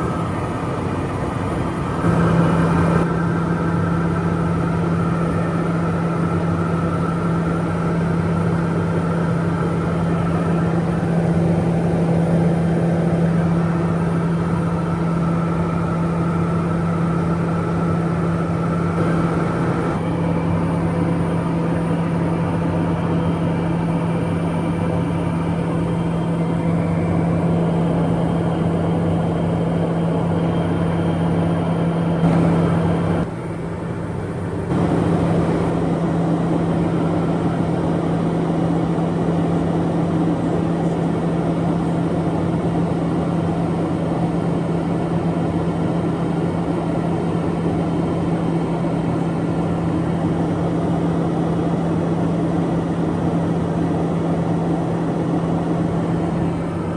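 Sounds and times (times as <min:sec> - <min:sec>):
turboprop cabin drone: 0:00.0 - 0:56.9.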